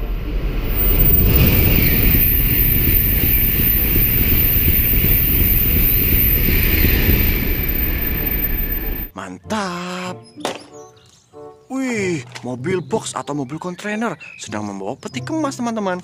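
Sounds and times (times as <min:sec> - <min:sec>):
bullet train passing at high speed: 0:00.0 - 0:09.1
wind buffeting the microphone: 0:00.6 - 0:08.4.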